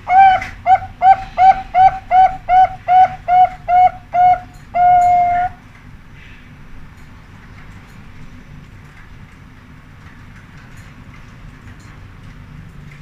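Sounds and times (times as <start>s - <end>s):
dove cooing: 0.0s - 5.6s.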